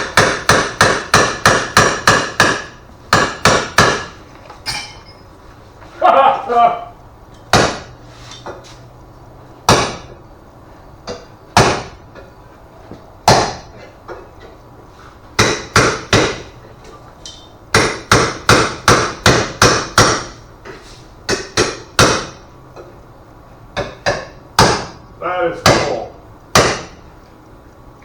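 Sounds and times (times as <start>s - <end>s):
hammer striking sheet steel: 0.0s - 5.2s.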